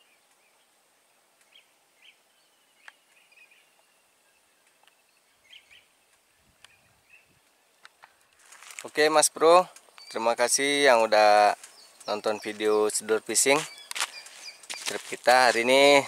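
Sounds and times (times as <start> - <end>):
faint bird chirps: 1.4 - 8.4, 10.0 - 16.0
light clicks: 9.6 - 10.2.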